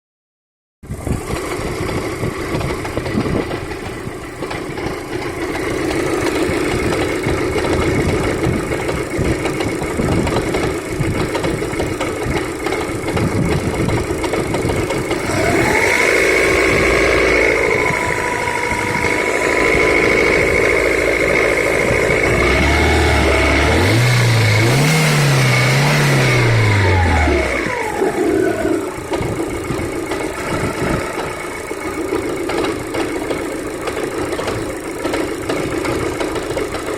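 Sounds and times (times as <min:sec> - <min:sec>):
car engine knocking: 0:00.9 - 0:36.9
steady high whine: 0:13.3 - 0:35.0.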